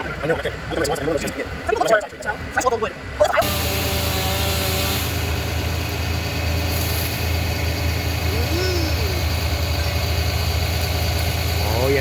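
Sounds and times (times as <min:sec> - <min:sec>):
heavy engine idling: 0:03.4 - 0:12.0.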